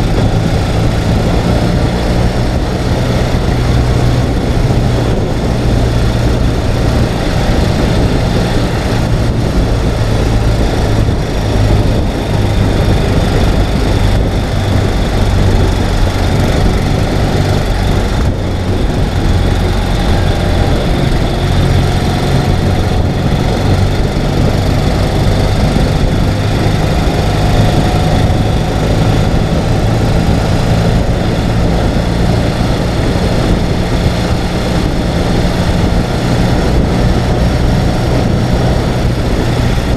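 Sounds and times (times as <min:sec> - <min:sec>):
motorcycle engine running: 0:00.0 - 0:39.9
steady rushing noise: 0:00.0 - 0:39.9.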